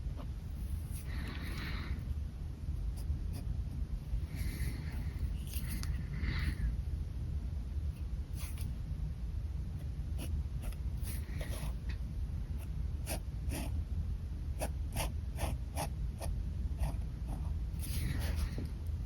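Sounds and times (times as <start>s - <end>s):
pen scratching on paper: 8.4s - 8.7s, 10.2s - 11.8s, 13.0s - 13.8s, 14.6s - 18.6s.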